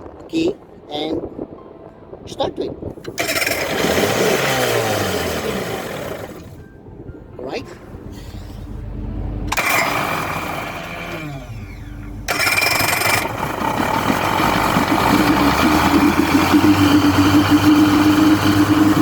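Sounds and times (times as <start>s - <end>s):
boat engine cranking and running: 3.0s - 6.7s, 8.0s - 19.0s.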